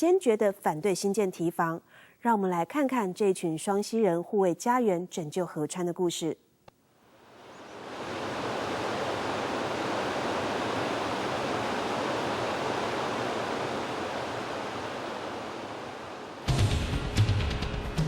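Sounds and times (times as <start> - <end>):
river water rushing: 7.1 - 16.5
drum-led music: 16.5 - 18.0.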